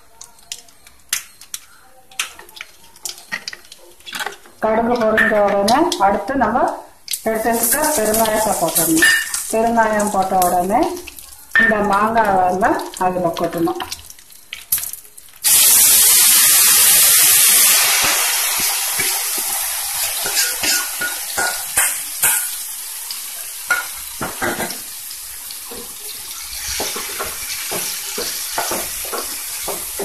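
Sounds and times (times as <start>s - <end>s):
food sizzling in hot oil: 0.0s - 30.0s
wooden spatula scraping and stirring: 7.5s - 10.6s.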